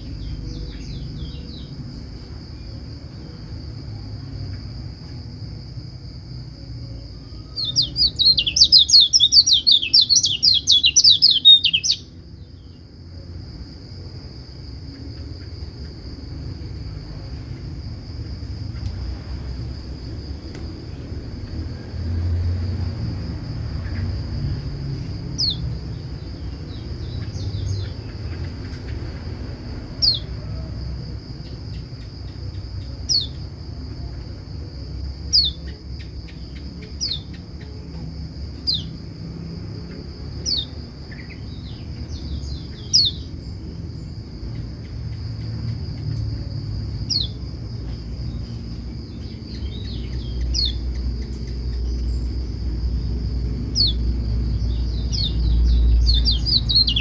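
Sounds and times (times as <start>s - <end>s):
bird giving sharp calls: 7.6s - 12.0s.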